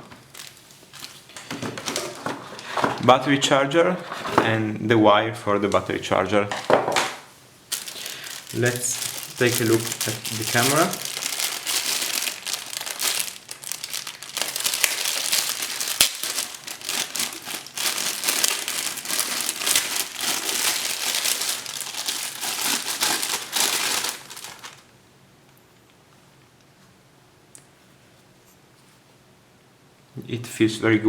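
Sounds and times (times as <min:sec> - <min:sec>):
packaging crinkling: 0:00.0 - 0:03.1, 0:07.7 - 0:24.9.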